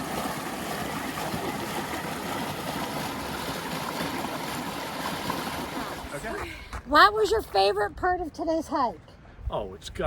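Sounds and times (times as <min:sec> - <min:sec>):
creek water rushing: 0:00.0 - 0:06.8.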